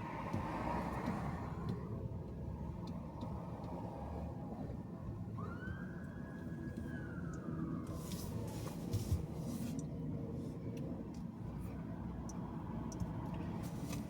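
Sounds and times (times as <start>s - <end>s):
car road and engine rumble: 0.0s - 14.0s
emergency siren: 5.3s - 8.1s.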